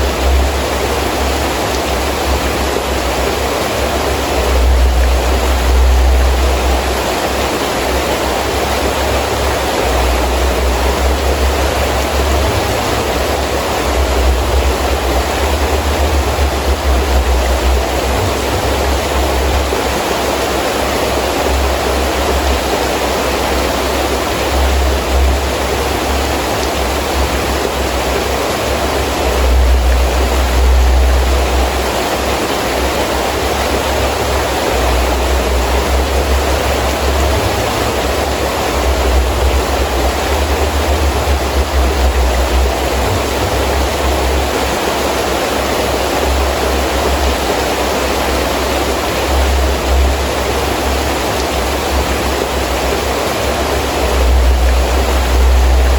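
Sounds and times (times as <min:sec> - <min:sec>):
gusting wind rumbling: 0:00.0 - 0:55.9
heavy rain falling: 0:00.0 - 0:55.9.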